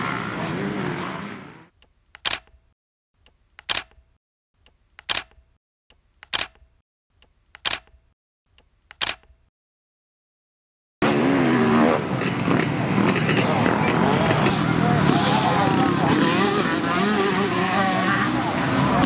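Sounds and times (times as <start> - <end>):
camera shutter clicking: 2.2 - 2.5, 3.6 - 3.9, 5.0 - 5.3, 6.2 - 6.6, 7.6 - 7.9, 8.9 - 9.3.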